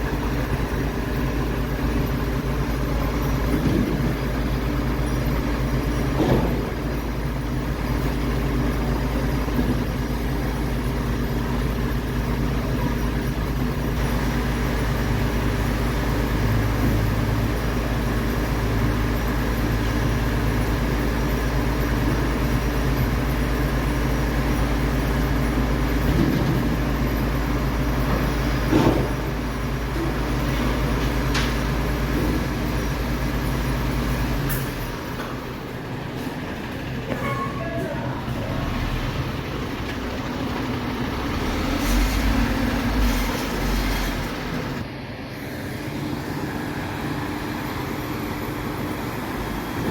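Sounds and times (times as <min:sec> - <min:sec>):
diesel truck engine running: 0:00.0 - 0:49.9.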